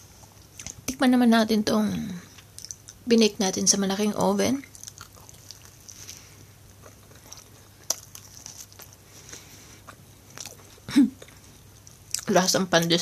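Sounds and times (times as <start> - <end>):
faint chewing mouth clicks: 2.4 - 3.0, 4.6 - 12.3.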